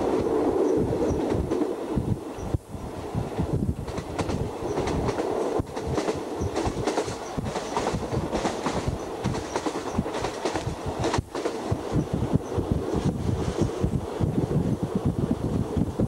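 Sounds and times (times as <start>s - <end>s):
train rattling and rumbling: 0.0s - 16.0s.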